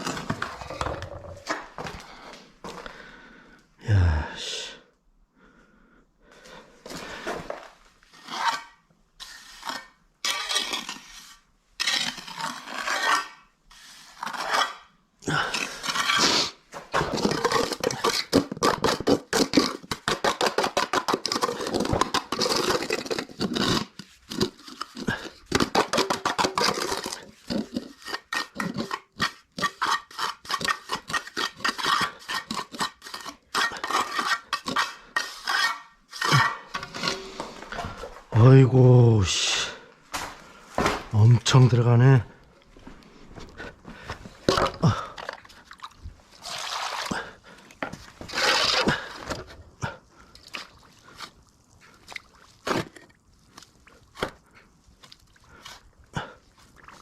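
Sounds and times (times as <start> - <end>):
trowel scraping wet mortar: 0.0 - 1.9, 6.9 - 38.2, 43.4 - 57.0.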